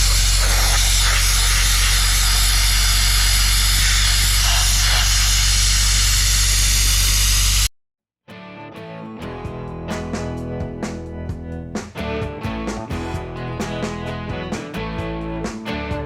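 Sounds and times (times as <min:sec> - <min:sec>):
blast nozzle hissing: 0:00.0 - 0:07.7
compressor engine humming: 0:00.0 - 0:07.7.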